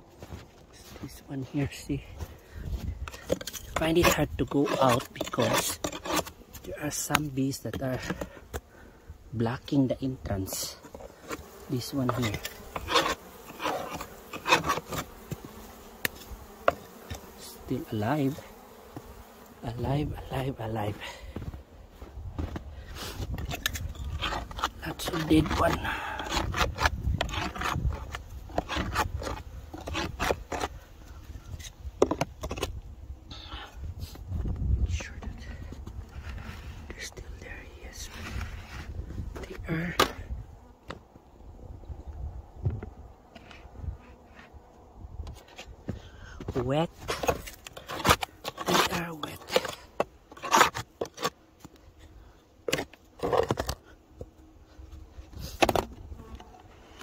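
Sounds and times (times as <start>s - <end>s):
tool scraping and knocking on wood: 2.8s - 8.6s, 10.4s - 17.4s, 22.4s - 30.8s, 31.5s - 32.8s, 42.6s - 44.6s, 45.2s - 51.8s, 52.6s - 54.4s, 55.2s - 56.7s.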